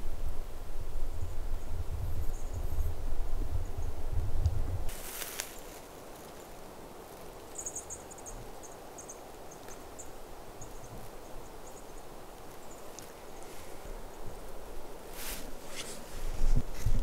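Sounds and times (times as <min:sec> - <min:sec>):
faint steady hiss: 0:00.0 - 0:17.0
small bird chirping: 0:07.2 - 0:13.5.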